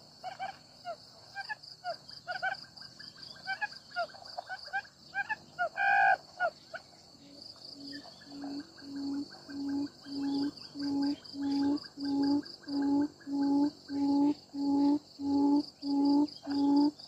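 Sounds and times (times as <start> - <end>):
insects droning: 0.0 - 17.0
birds chirping: 5.1 - 17.0.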